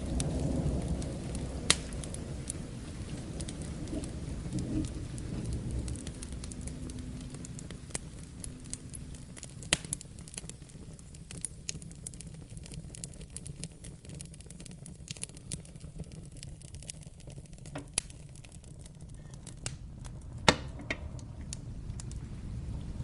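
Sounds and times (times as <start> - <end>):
thunder rumbling: 0.0 - 10.7, 19.8 - 23.0
rain hissing: 0.0 - 23.0
wood fire crackling: 0.0 - 23.0.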